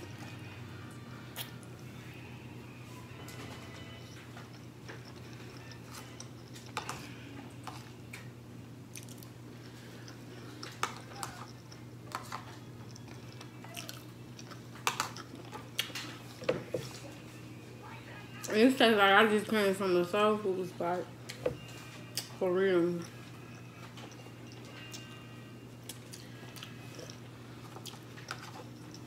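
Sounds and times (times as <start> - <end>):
low steady hum: 0.0 - 29.0
person chewing food: 3.4 - 8.3, 8.9 - 17.4, 23.0 - 25.2, 25.8 - 29.0.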